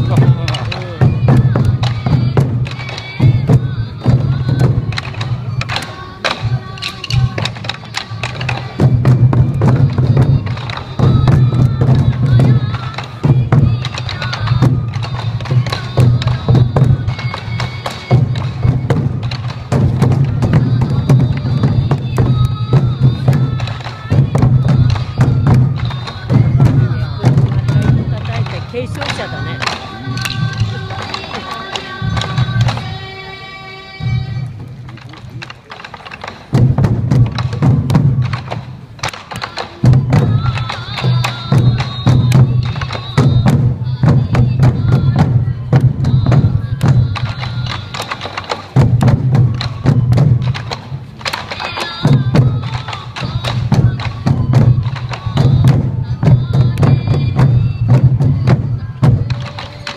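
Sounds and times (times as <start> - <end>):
taiko drums beating: 0.0 - 33.0, 34.0 - 59.9
sharp stick clicks: 37.3 - 43.6, 46.8 - 55.8.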